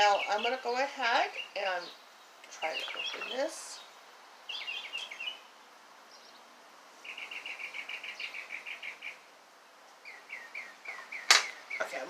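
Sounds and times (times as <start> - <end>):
small songbird singing: 0.0 - 9.3, 9.9 - 12.0.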